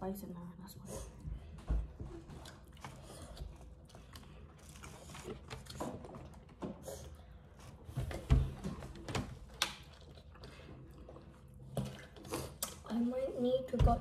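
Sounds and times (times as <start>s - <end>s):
chewing food: 2.0s - 7.8s, 9.4s - 12.9s.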